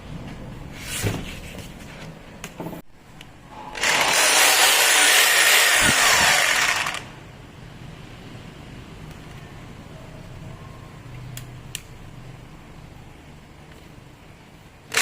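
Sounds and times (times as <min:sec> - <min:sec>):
rotary hammer running: 0:03.8 - 0:07.1.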